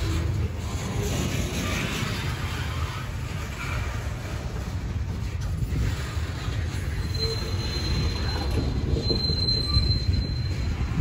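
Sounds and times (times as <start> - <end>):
train wheels rumbling on rails: 0.0 - 11.0
high wheel squeal: 6.4 - 11.0.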